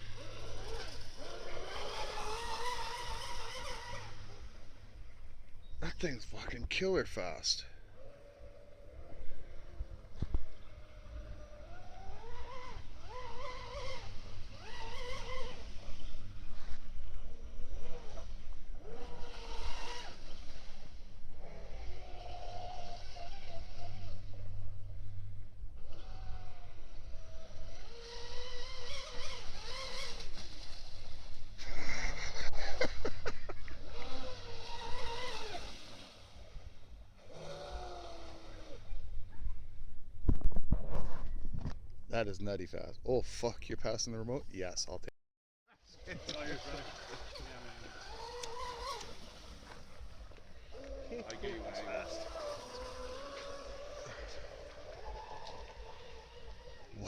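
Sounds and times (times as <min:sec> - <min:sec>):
electric motor whining: 0:00.0 - 0:06.1, 0:07.8 - 0:39.7, 0:46.0 - 0:57.0.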